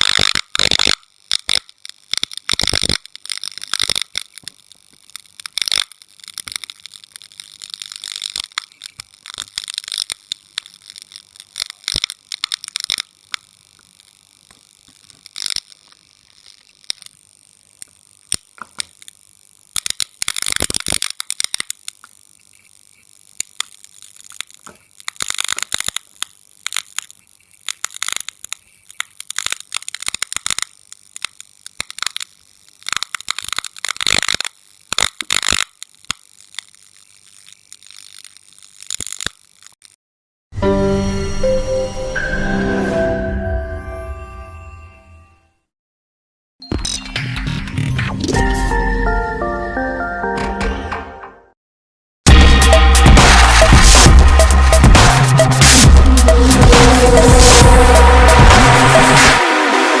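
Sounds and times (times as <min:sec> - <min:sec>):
sharp clicks and crackling bursts: 0:00.0 - 0:40.0, 0:52.3 - 1:00.0
hissy noise: 0:52.3 - 1:00.0.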